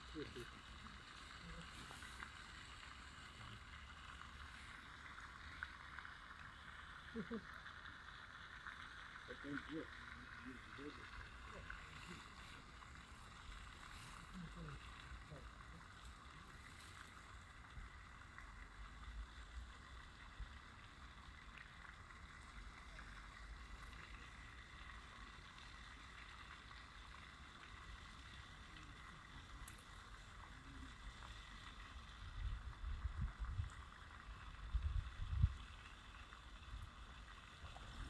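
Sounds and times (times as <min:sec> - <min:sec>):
soft steady hiss: 0:00.0 - 0:38.0
wind buffeting microphone: 0:34.6 - 0:35.6.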